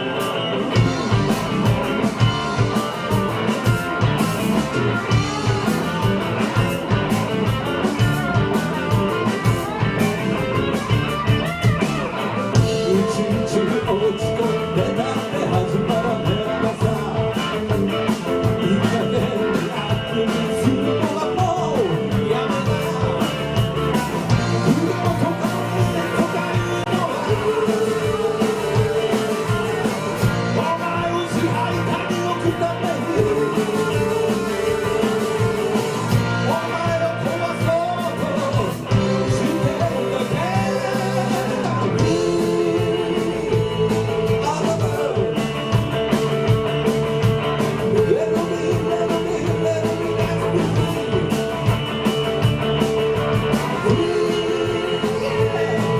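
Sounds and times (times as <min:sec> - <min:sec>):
rock band playing live: 0:00.0 - 0:55.9
person singing: 0:11.8 - 0:46.2, 0:47.8 - 0:51.7, 0:53.5 - 0:55.9.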